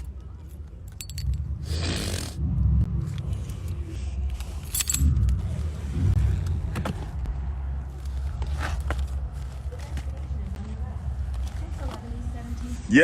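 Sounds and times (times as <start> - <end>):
keys jangling: 0.0 - 1.6, 4.6 - 5.4
low rumble: 1.0 - 9.7.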